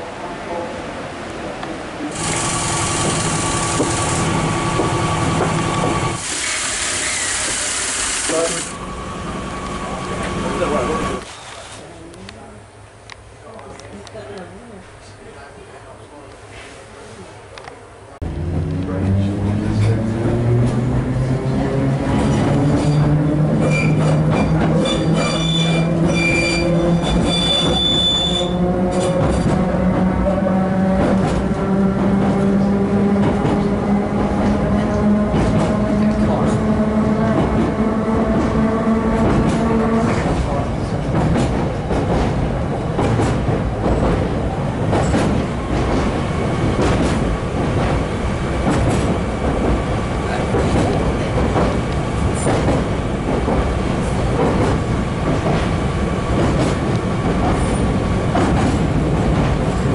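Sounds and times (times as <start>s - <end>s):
wheels rumbling on rails: 1.6s - 6.2s, 18.2s - 59.9s
high-pitched wheel squeal: 22.8s - 28.6s.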